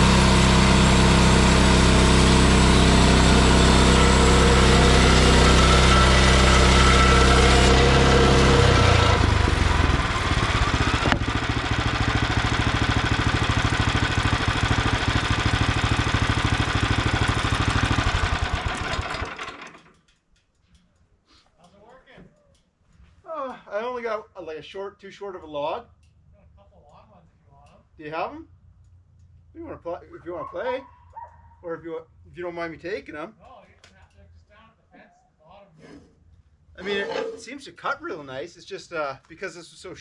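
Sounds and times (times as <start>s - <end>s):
small gas engine running: 0.0s - 20.0s.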